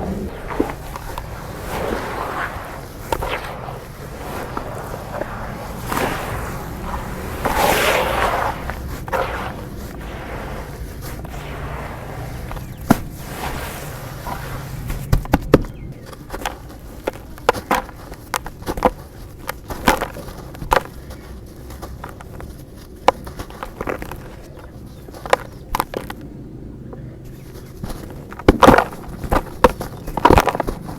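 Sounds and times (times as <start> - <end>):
dry dirt crumbling: 0.0 - 30.9
sharp cracks of breaking dirt: 27.4 - 30.9.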